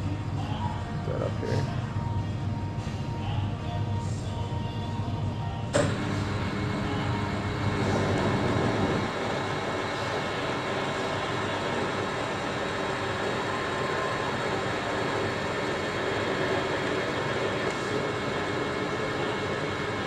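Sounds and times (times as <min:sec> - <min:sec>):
metal lathe humming: 0:05.7 - 0:20.0.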